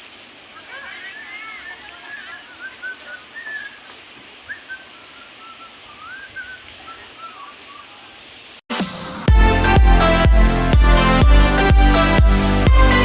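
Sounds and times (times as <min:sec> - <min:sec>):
faint hiss: 0:00.0 - 0:08.6
birds whistling swooping calls: 0:00.6 - 0:08.2.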